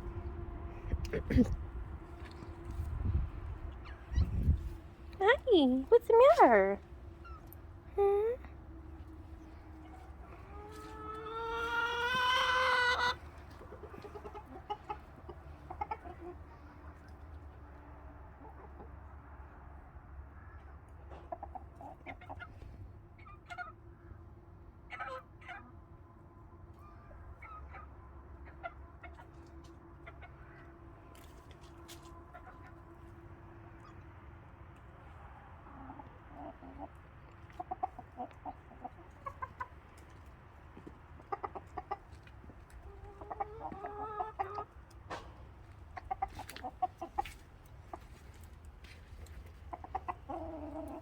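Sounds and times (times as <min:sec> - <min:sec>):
faint low rumble: 0:00.0 - 0:05.9
chickens clucking: 0:00.0 - 0:07.8, 0:08.5 - 0:19.5, 0:20.6 - 0:25.8, 0:26.7 - 0:51.0.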